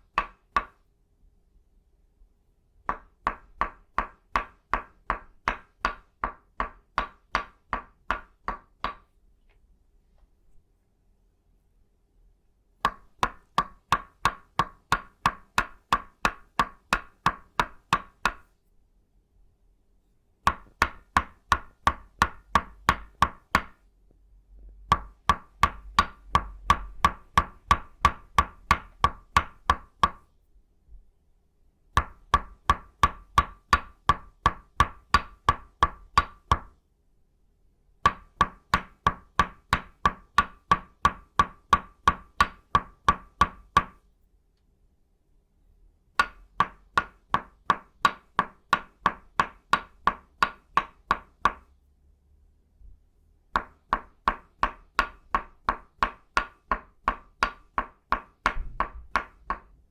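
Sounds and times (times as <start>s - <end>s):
mallet knocking wooden peg: 0.1s - 0.8s, 2.8s - 9.1s, 12.8s - 18.5s, 20.4s - 23.8s, 24.9s - 30.3s, 32.0s - 36.7s, 38.0s - 44.0s, 46.2s - 51.7s, 53.5s - 59.7s.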